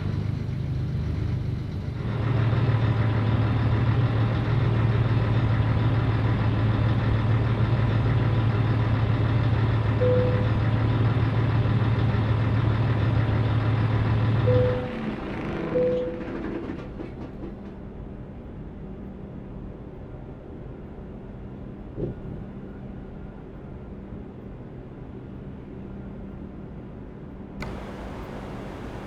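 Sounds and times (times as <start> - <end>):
short beeps: 10.0 - 10.5, 14.5 - 14.9
diesel truck engine running: 27.6 - 29.0.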